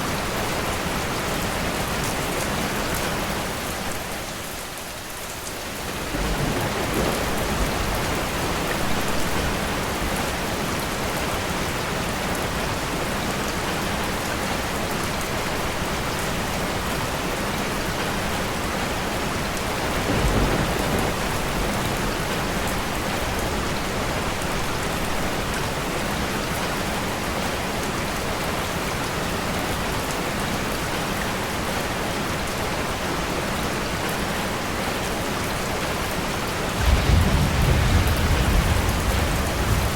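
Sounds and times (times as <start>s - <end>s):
rain pattering: 0.2s - 39.9s
low rumble: 36.8s - 39.9s.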